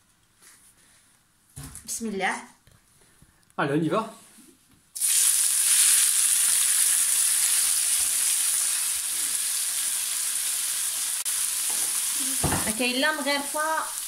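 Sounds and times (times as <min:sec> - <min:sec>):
food sizzling in hot oil: 0:05.0 - 0:14.0.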